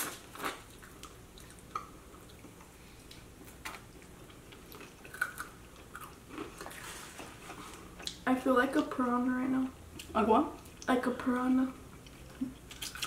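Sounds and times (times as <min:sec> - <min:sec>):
wet chewing mouth sounds: 0:11.8 - 0:13.0
small mouth clicks and smacks: 0:12.1 - 0:13.0.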